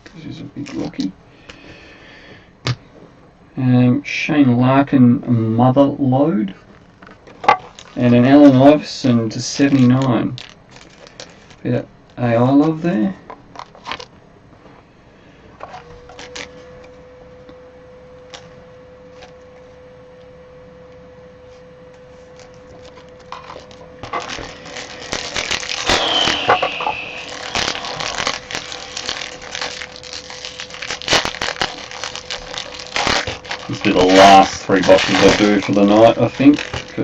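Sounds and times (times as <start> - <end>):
packaging crinkling and tearing: 0.0 - 1.1, 6.9 - 8.6, 9.6 - 11.6, 13.6 - 14.1, 15.8 - 16.6, 22.4 - 37.0
faint steady hum: 0.0 - 37.0
packaging clicks and rustling: 6.8 - 8.2, 9.6 - 11.6, 13.4 - 14.1, 15.6 - 16.6, 22.4 - 37.0
short falling squeak: 25.8 - 28.2.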